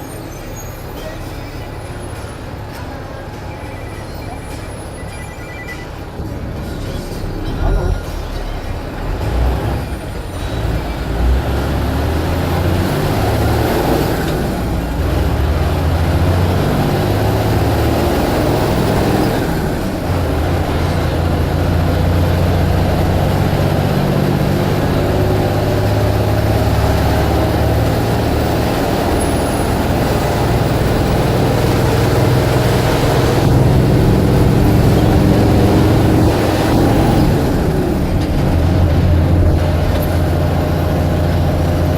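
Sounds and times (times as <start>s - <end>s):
bus engine driving: 0.0s - 41.9s.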